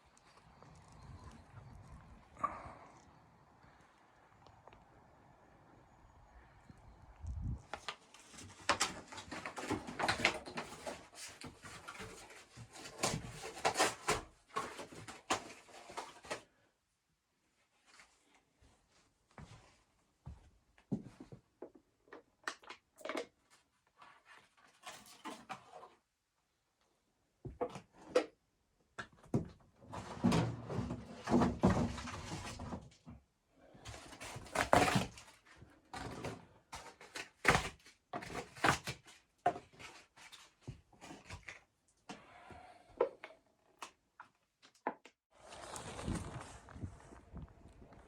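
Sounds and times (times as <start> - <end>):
rustling and scraping: 7.4 - 16.6, 23.4 - 26.1, 29.8 - 33.2, 33.8 - 41.7, 45.3 - 48.0.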